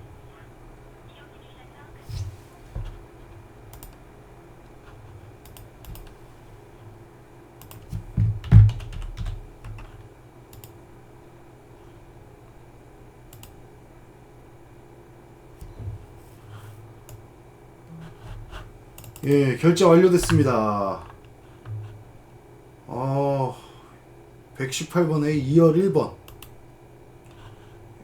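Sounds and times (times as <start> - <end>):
keyboard typing: 2.1 - 4.0, 4.7 - 6.2, 7.6 - 10.8, 13.3 - 13.6, 17.9 - 19.4, 26.3 - 26.6.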